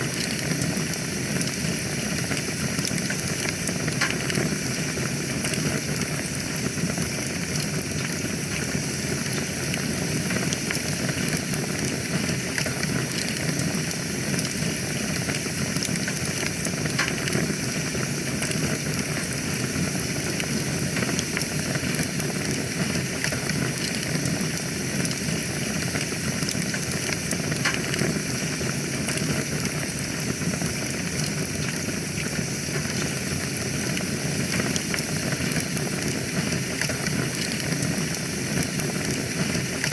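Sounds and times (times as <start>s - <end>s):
burning wood crackling and popping: 0.0s - 39.9s
fire flames hissing: 0.0s - 39.9s.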